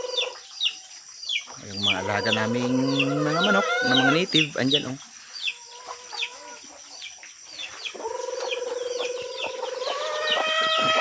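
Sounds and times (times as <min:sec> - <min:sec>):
chicks peeping: 0:00.0 - 0:11.0
chicken long call: 0:01.9 - 0:04.3, 0:07.9 - 0:11.0.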